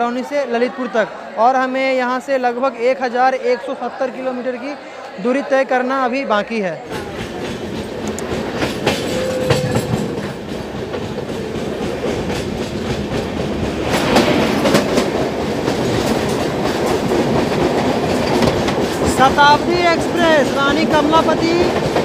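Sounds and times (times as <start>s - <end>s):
train wheels clacking over rail joints: 6.9s - 19.4s
train rumble: 6.9s - 22.0s.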